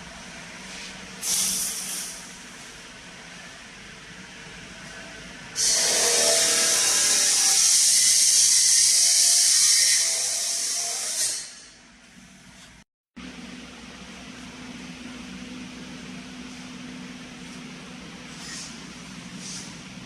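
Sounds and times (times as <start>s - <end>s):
power tool high-pitched whine: 5.6s - 11.8s.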